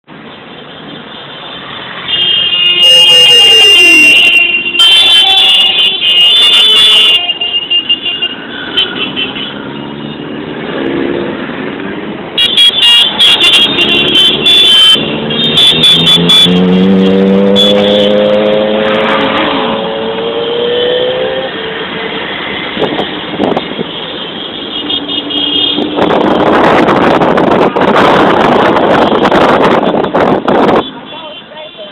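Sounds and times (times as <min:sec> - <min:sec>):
motorcycles and cars passing: 0:00.1 - 0:04.5, 0:07.0 - 0:31.9
vehicle horn blasts: 0:02.1 - 0:09.6, 0:12.4 - 0:18.4, 0:23.5 - 0:26.5, 0:28.8 - 0:31.9
engine revving: 0:14.9 - 0:21.7.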